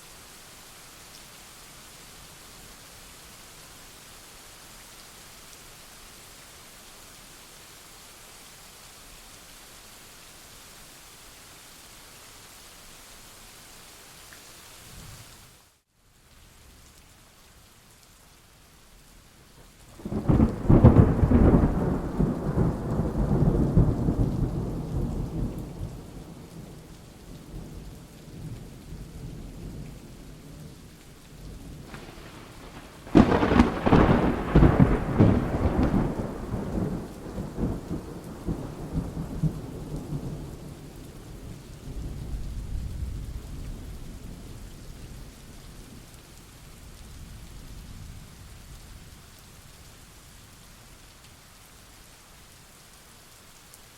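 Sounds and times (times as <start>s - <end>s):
steady rain: 0.0s - 53.9s
thunder rumbling: 19.9s - 26.8s, 31.7s - 45.0s.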